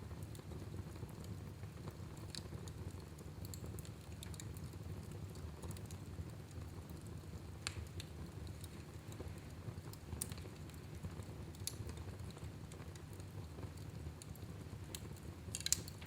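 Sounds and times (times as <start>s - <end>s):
fire flames rumbling: 0.0s - 16.0s
wood fire crackles and pops: 0.0s - 16.0s.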